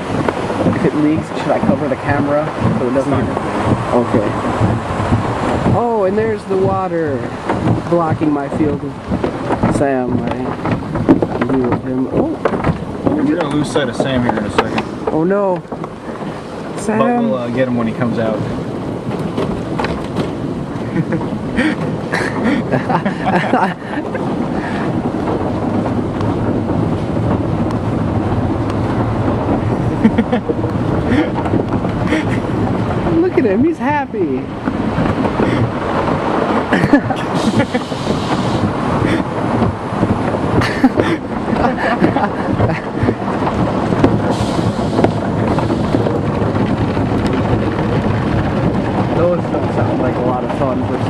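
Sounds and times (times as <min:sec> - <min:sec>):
low machinery rumble: 0:00.0 - 0:51.0
water drumming on vehicle: 0:00.0 - 0:51.0
water spray rushing: 0:35.4 - 0:46.2
spray hiss: 0:37.3 - 0:38.6, 0:44.3 - 0:45.0.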